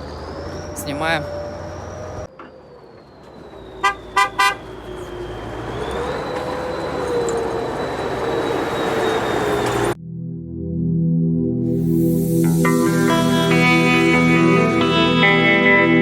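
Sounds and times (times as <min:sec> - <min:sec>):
engine running: 0:00.0 - 0:10.0
vehicle horn tooting: 0:03.8 - 0:04.9.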